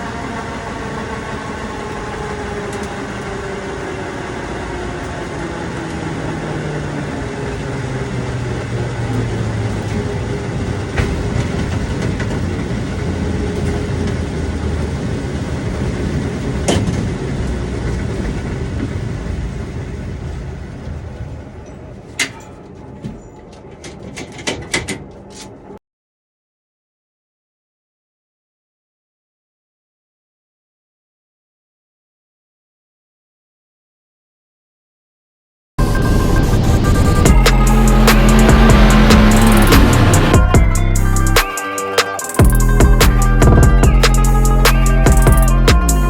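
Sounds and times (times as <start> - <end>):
vehicle engine running: 0.0 - 20.8, 35.8 - 46.0.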